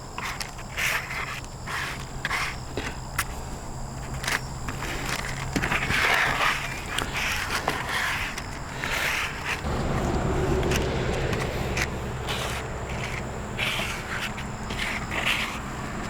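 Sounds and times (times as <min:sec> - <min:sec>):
low hum: 0:09.6 - 0:15.1
tool scraping through paste: 0:10.6 - 0:15.8.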